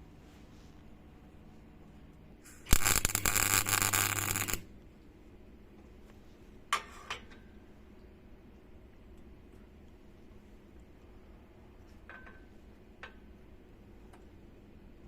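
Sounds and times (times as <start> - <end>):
small electric motor buzzing: 2.7 - 4.6.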